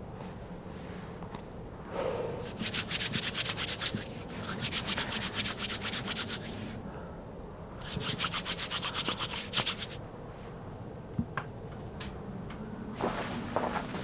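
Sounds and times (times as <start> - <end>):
rapid rhythmic scraping: 2.5 - 6.8, 7.8 - 10.0.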